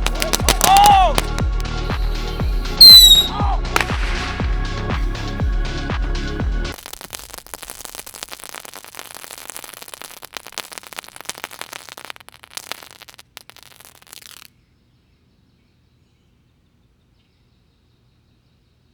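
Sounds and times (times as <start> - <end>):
fireworks crackling: 0.0 - 14.6
faint outdoor background: 0.0 - 18.9.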